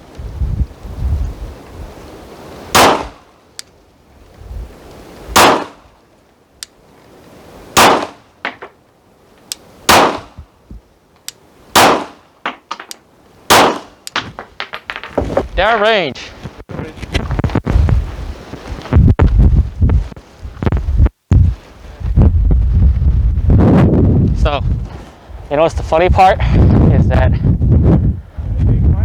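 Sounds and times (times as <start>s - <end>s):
pistol shots: 2.7s - 3.2s, 5.4s - 5.8s, 7.8s - 8.6s, 9.9s - 10.4s, 11.8s - 12.6s, 13.5s - 14.0s
faint sharp cracks: 11.2s - 15.2s.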